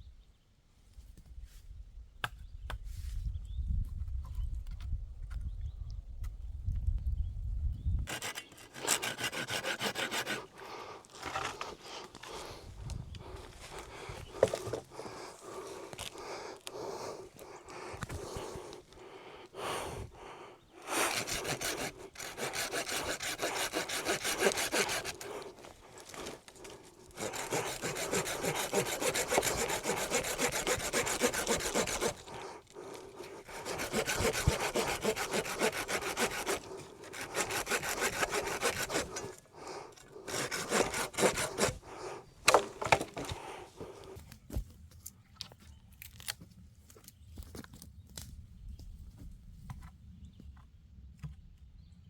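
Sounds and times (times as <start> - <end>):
handsaw cutting wood: 8.1 - 12.6, 19.6 - 44.1.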